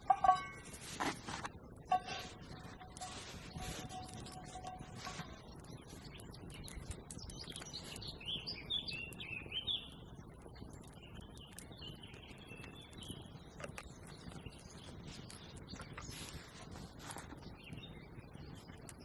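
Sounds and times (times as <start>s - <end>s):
songbird chirping and warbling: 1.9s - 10.1s.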